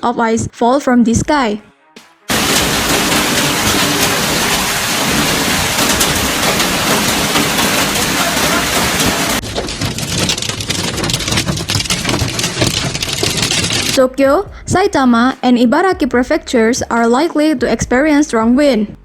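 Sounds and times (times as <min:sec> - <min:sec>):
hail pelting down: 0:02.3 - 0:14.0.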